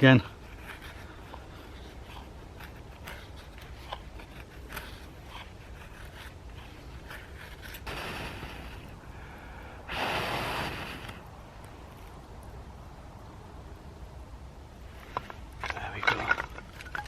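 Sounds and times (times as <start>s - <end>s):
knife scraping dry wood: 0.3s - 8.9s.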